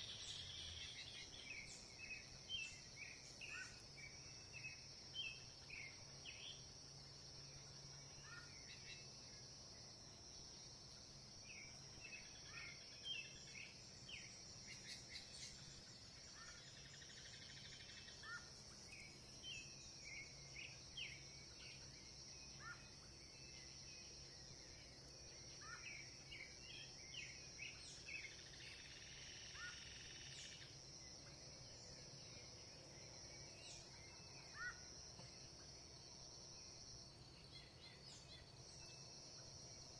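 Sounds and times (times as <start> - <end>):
faint birdsong chirps: 0.0 - 39.9
high-pitched insect drone: 28.2 - 30.8.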